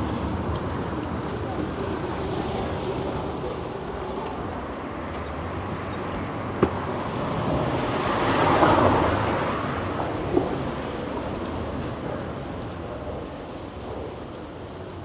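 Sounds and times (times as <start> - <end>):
city street ambience: 0.0 - 15.0
short sharp knocks: 6.5 - 7.2.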